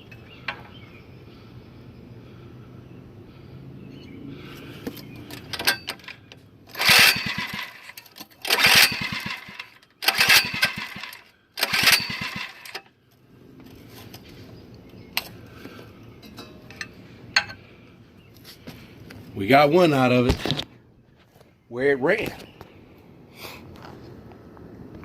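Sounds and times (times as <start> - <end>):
small engine turning over: 5.2 - 12.9.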